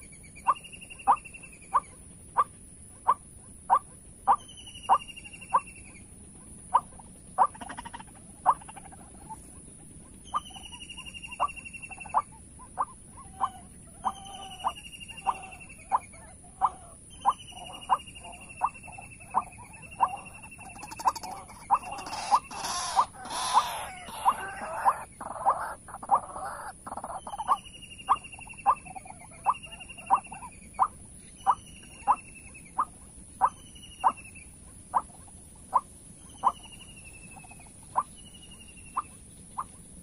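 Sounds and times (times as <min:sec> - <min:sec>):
high insect drone: 0:00.0 - 0:40.0
waterhen calling sharp notes: 0:18.6 - 0:25.8.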